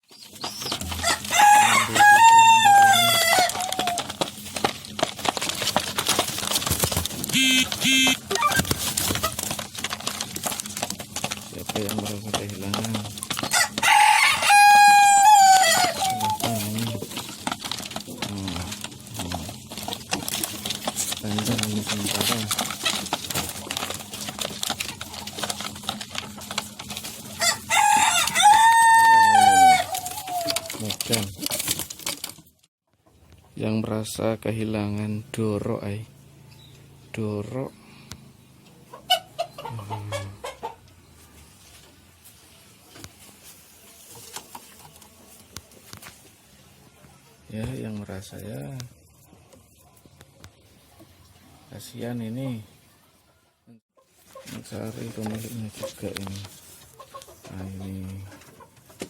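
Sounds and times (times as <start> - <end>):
rooster crowing: 0.8 - 4.1, 13.5 - 16.7, 27.4 - 30.6.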